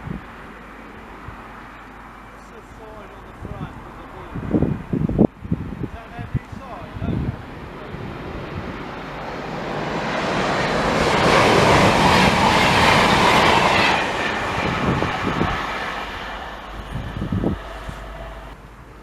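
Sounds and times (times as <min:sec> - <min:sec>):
train passing: 0:00.0 - 0:18.9.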